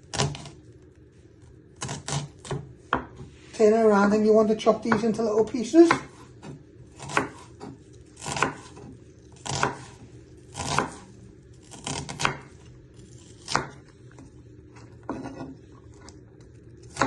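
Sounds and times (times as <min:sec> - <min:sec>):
knife chopping on a board: 0:01.8 - 0:03.3, 0:05.8 - 0:11.1, 0:11.7 - 0:12.5, 0:13.3 - 0:13.8.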